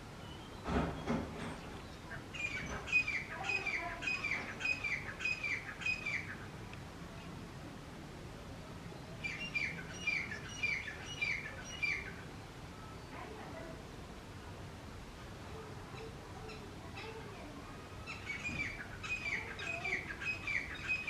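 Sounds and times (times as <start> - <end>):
francolin calling: 1.8 - 6.6, 9.2 - 12.3, 18.0 - 21.0.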